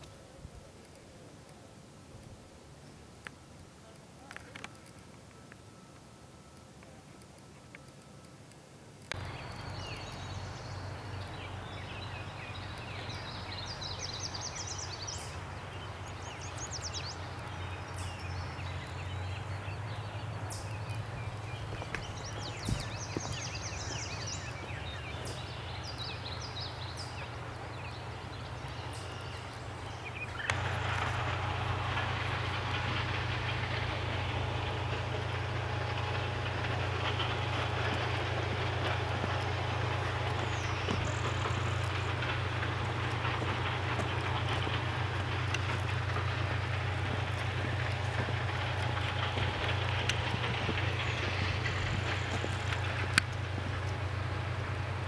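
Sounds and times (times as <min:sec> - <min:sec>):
steady low rumble: 0:09.1 - 0:55.0
birds chirping and trilling: 0:09.2 - 0:55.0.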